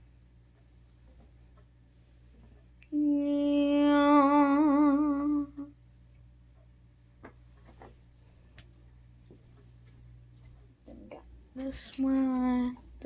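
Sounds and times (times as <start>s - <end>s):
girl humming: 2.9s - 5.8s.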